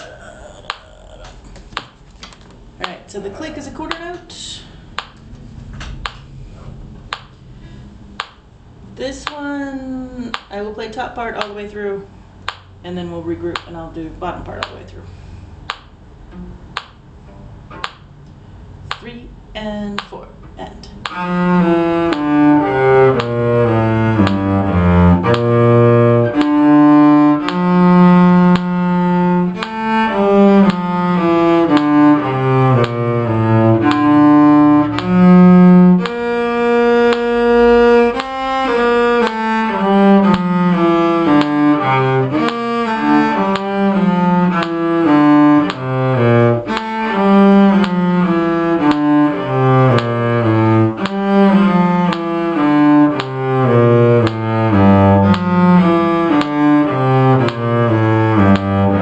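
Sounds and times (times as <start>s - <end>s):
cello playing brisk melody: 20.9s - 59.0s.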